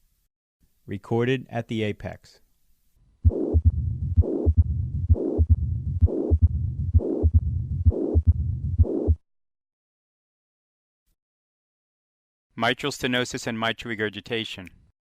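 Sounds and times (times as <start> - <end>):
heart murmur: 3.2 - 9.2
low heartbeat thumps: 3.2 - 9.2.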